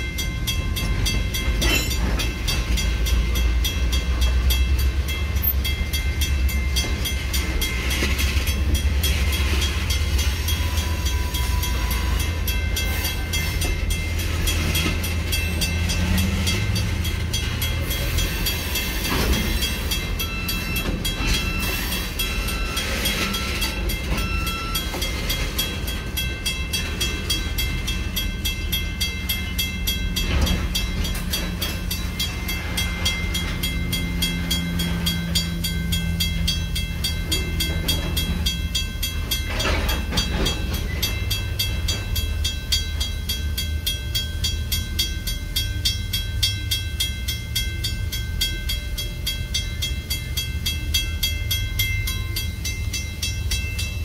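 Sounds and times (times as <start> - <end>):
freight train wheels clattering: 0.0 - 54.0
low train rumble: 0.0 - 54.0.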